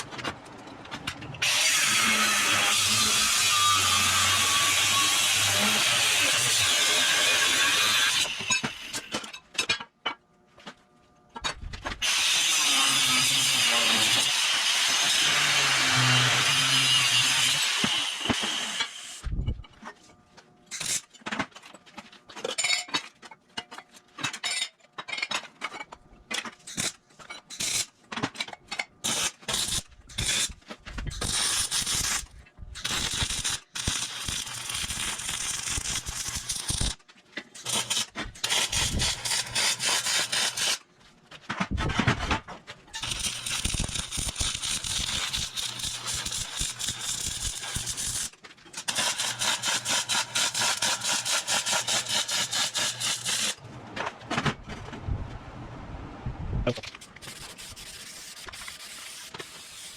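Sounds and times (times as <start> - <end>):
scraping and rubbing on steel: 43.0 - 53.6, 56.8 - 59.9.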